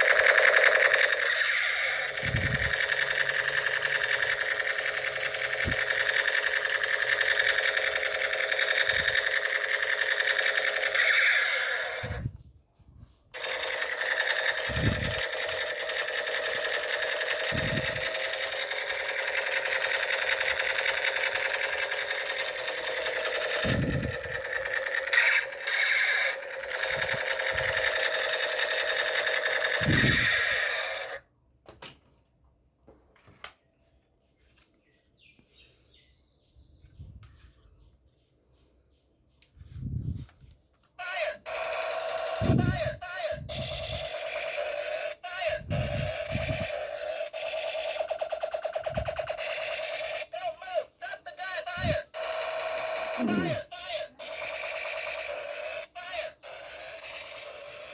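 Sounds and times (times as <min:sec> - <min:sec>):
toy gun buzzing rattle: 0:00.0 - 0:12.3, 0:13.4 - 0:31.2, 0:41.1 - 0:57.9.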